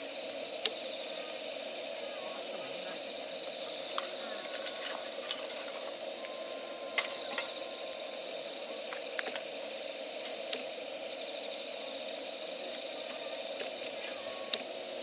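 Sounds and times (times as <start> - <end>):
fire hissing: 0.0 - 15.0
campfire crackles and pops: 0.5 - 15.0
high-pitched drone: 4.2 - 8.8.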